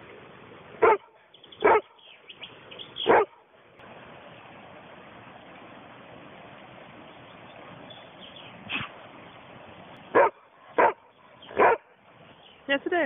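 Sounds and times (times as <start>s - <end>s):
outdoor hiss: 0.0s - 13.0s
dog barking: 0.8s - 2.0s, 3.0s - 3.4s, 10.1s - 11.9s.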